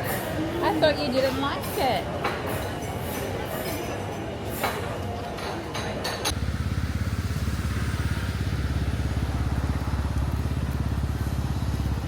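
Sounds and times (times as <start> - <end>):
low pulsing engine rumble: 6.3 - 12.0.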